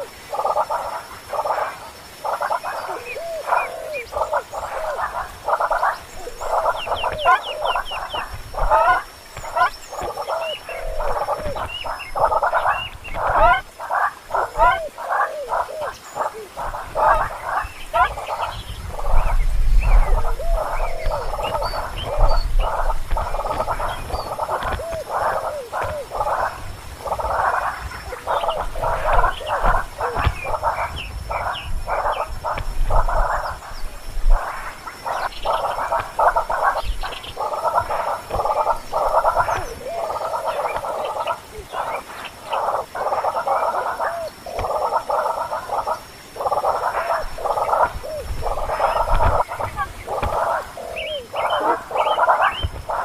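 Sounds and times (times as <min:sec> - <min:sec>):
raspy pulsed animal calls: 0:00.0 - 0:53.0.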